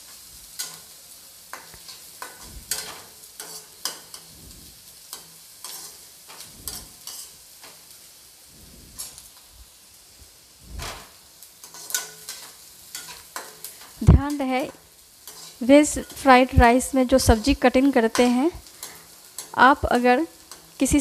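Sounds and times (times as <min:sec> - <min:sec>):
onion sizzling in pan: 0:00.0 - 0:21.0
spatula scraping pan: 0:01.5 - 0:07.9, 0:08.8 - 0:09.4, 0:10.8 - 0:19.8.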